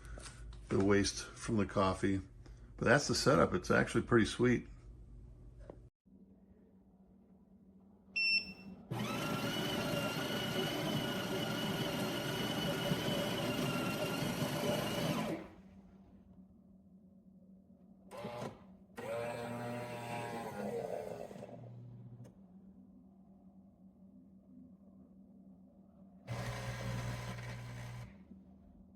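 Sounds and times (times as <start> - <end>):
espresso machine beep: 8.2 - 8.7
espresso machine motor whirring: 8.9 - 15.6, 18.1 - 22.3, 26.3 - 28.2.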